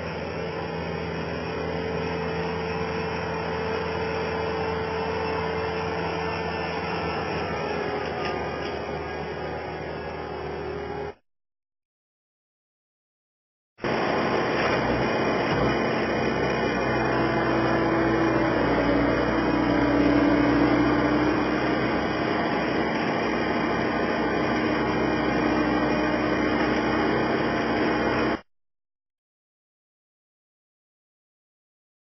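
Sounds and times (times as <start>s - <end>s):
loader engine running: 0.0s - 11.2s, 13.8s - 28.4s.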